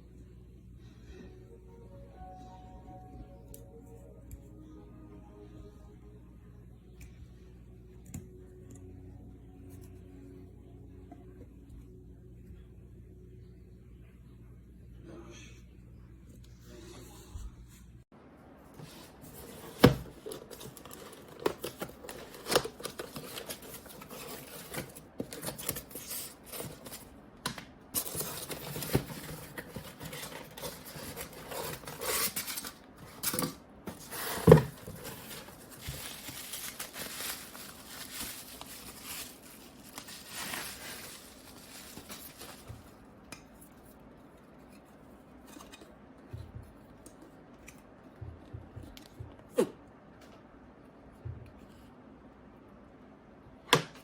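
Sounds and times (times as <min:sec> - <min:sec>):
rustling: 0:28.0 - 0:43.0.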